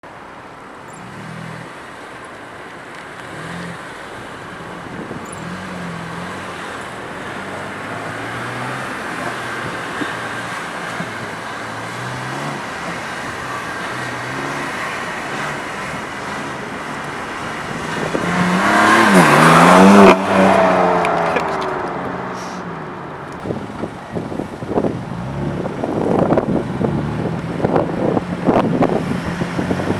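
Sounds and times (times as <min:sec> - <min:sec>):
car exhaust accelerating past: 0:04.9 - 0:22.7.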